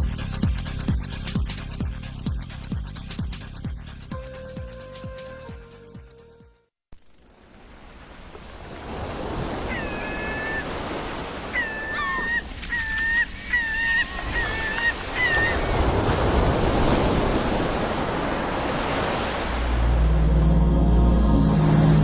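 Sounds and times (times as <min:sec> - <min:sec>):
geese honking: 0:09.7 - 0:10.7, 0:11.5 - 0:15.6.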